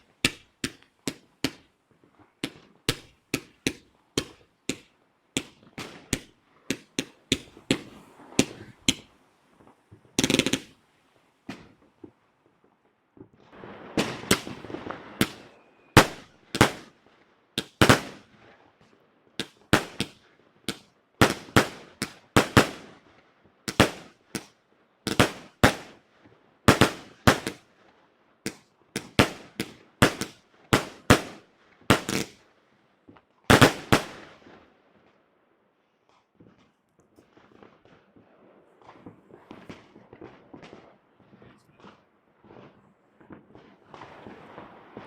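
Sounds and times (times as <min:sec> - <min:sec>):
fireworks bangs: 0:00.0 - 0:17.0, 0:17.6 - 0:18.6, 0:26.7 - 0:27.7, 0:28.5 - 0:32.4, 0:33.0 - 0:35.1, 0:36.3 - 0:45.0
fireworks crackling: 0:00.0 - 0:23.1, 0:23.7 - 0:27.8, 0:28.4 - 0:35.2, 0:36.0 - 0:45.0.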